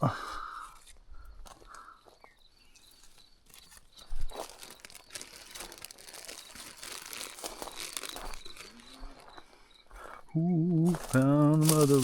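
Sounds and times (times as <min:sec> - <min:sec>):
brush and twigs rustling: 0:02.7 - 0:10.0, 0:10.8 - 0:12.0.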